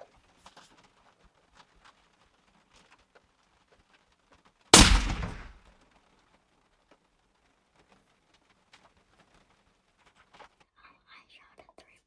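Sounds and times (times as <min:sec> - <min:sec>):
suppressed rifle shot: 0:04.8 - 0:05.6.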